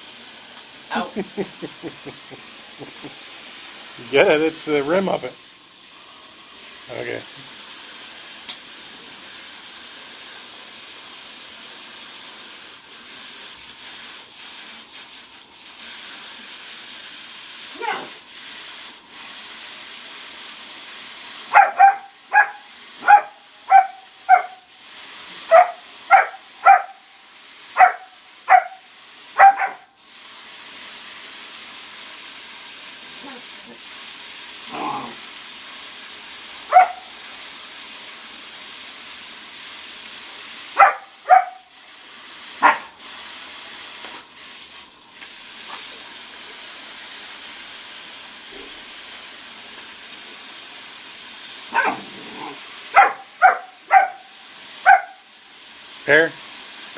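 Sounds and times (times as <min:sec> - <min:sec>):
background hiss: 0:00.0 - 0:56.9
puppy barking: 0:21.5 - 0:24.7, 0:25.5 - 0:27.0, 0:27.8 - 0:29.9, 0:36.7 - 0:37.1, 0:40.8 - 0:41.7, 0:42.6 - 0:42.9, 0:51.7 - 0:55.2.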